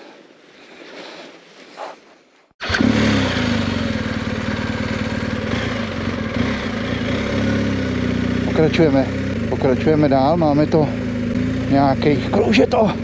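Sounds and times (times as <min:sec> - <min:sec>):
motorcycle engine idling: 0:02.6 - 0:13.0.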